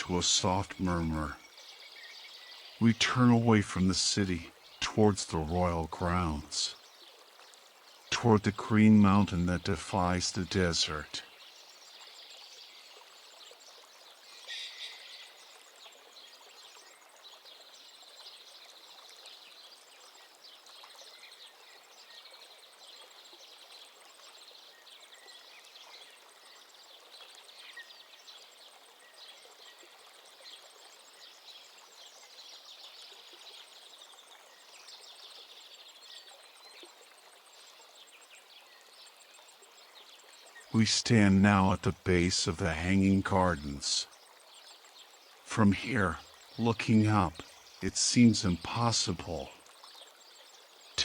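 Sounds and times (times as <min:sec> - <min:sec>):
running water: 0:00.0 - 0:51.0
night creatures chirping trills: 0:40.7 - 0:44.1, 0:45.5 - 0:49.5.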